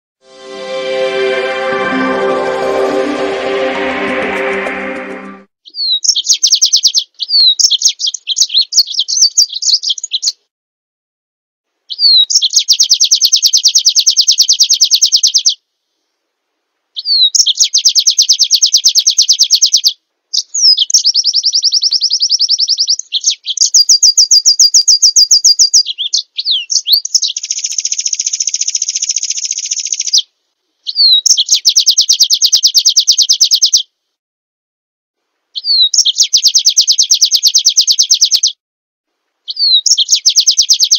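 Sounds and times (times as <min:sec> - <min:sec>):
songbird trilling song: 0:35.6 - 0:38.5, 0:39.5 - 0:40.9.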